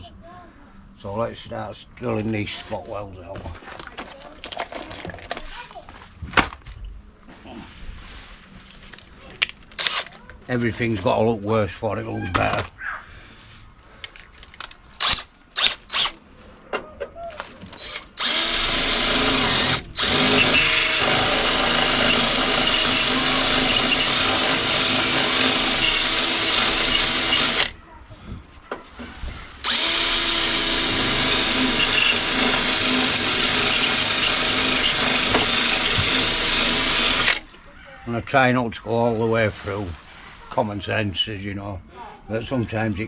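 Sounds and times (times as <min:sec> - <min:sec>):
power drill drilling metal: 0:15.0 - 0:16.2, 0:17.7 - 0:27.8, 0:29.6 - 0:37.5.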